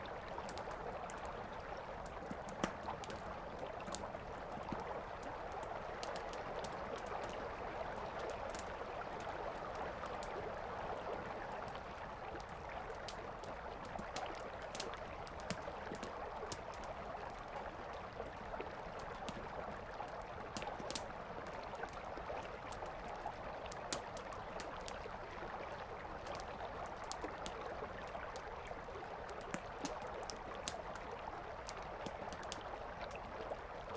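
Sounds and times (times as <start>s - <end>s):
campfire crackling and popping: 0.3s - 7.4s, 8.2s - 10.6s, 12.4s - 25.6s, 26.2s - 33.9s.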